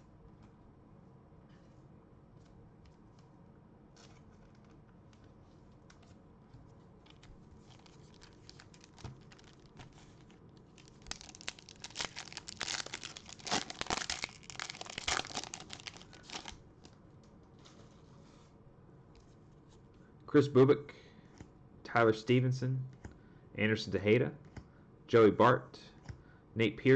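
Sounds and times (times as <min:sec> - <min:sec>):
plastic wrapper tearing and crinkling: 0:07.0 - 0:17.0.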